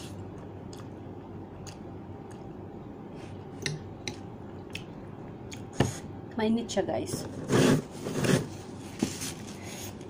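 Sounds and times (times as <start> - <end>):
person chewing noodles: 0.0 - 5.7
low background hum: 0.0 - 10.0.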